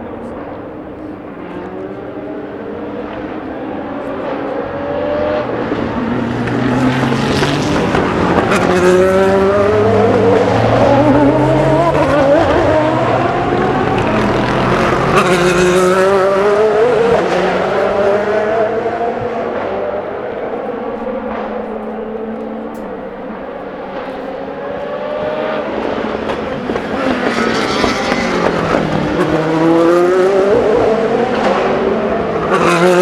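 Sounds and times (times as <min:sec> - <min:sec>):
race cars passing: 0:00.0 - 0:33.0.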